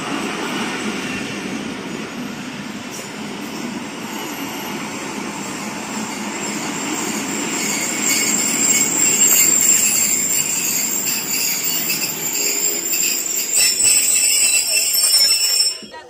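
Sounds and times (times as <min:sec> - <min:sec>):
train wheels rumbling: 0:00.0 - 0:16.0
metallic wheel squealing: 0:05.9 - 0:16.0.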